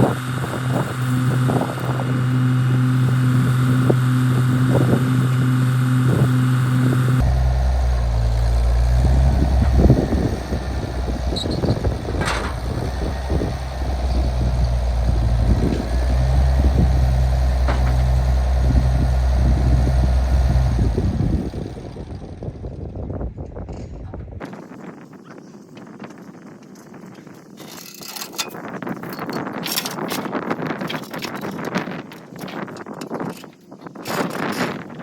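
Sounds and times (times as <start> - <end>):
engine running at low speed: 0.0 - 26.0
knocks and rattles: 8.9 - 20.1, 27.6 - 35.0.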